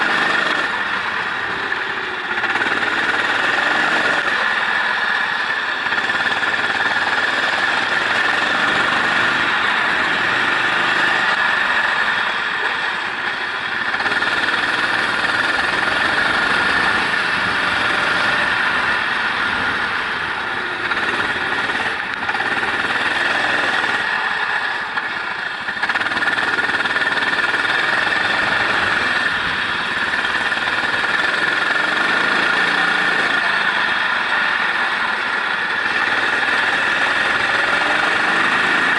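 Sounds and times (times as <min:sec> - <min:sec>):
racing engine at high revs: 0:00.0 - 0:38.9.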